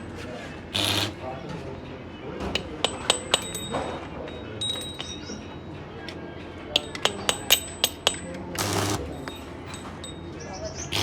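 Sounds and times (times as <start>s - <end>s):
metal tools clinking: 2.5s - 5.5s, 6.8s - 11.0s.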